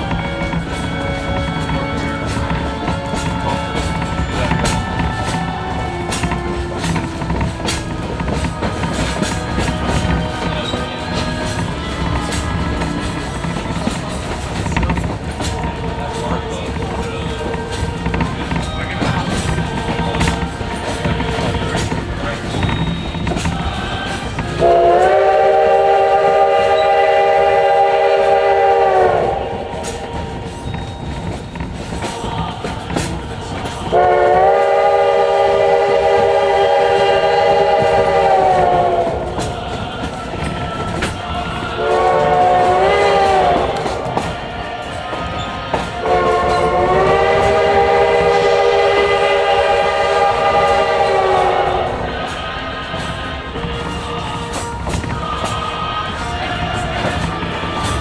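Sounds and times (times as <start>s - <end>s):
steam locomotive whistle: 0.0s - 58.0s
train car rumbling on track: 0.0s - 58.0s
steam whistle blast: 19.6s - 30.7s, 33.9s - 39.5s, 41.8s - 44.4s, 45.8s - 53.1s.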